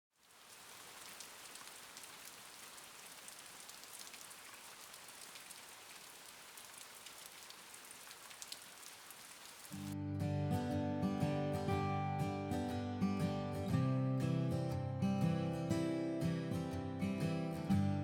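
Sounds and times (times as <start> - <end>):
steady rain: 0.1 - 10.0.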